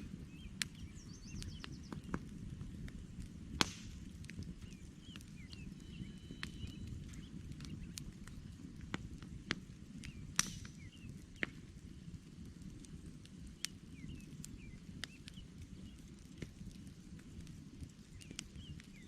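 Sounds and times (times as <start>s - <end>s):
campfire crackling and popping: 0.0s - 19.0s
faint bird chirps: 0.2s - 2.0s, 4.6s - 8.5s.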